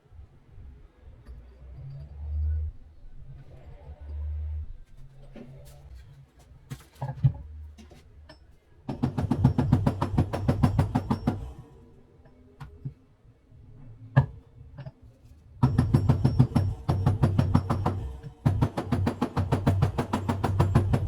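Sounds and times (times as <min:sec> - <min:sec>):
rapid hammer blows on metal: 0:15.6 - 0:21.0.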